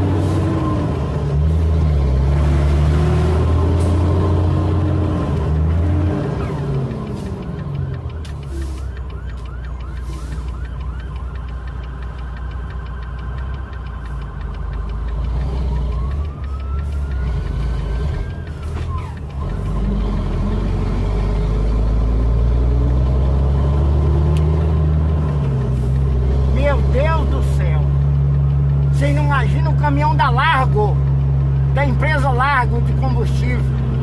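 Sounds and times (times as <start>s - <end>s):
truck engine rumble: 0.0s - 34.0s
siren yelping and wailing: 5.9s - 14.6s, 15.6s - 19.7s.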